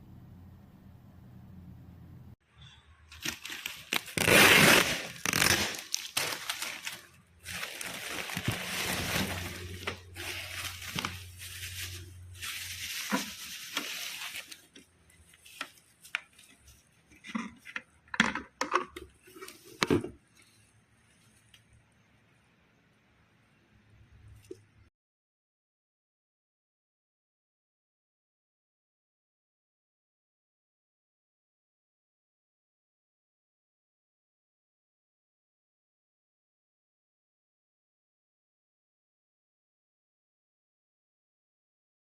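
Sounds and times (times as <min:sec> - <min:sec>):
packaging crinkling: 0:03.1 - 0:16.8
objects clicking and knocking: 0:15.6 - 0:20.2.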